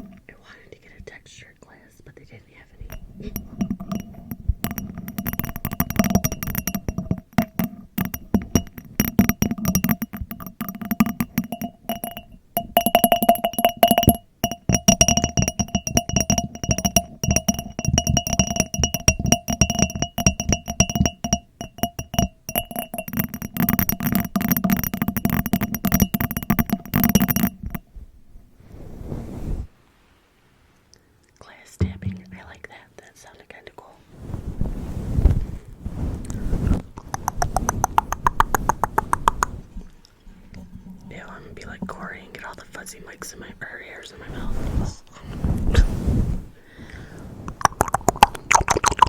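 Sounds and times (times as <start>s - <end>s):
tapping on ringing glass: 0.0s - 0.2s, 2.9s - 27.9s, 31.8s - 32.6s, 37.2s - 39.6s.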